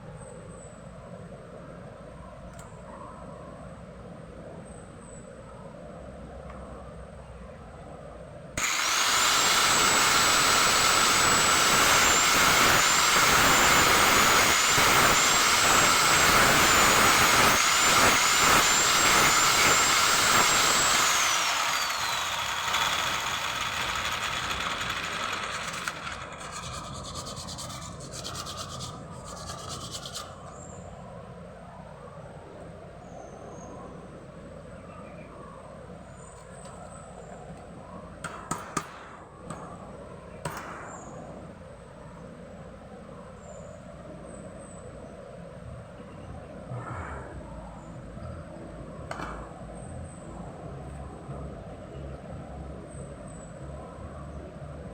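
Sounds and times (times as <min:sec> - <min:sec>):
electric power tool whining: 0:08.6 - 0:30.4.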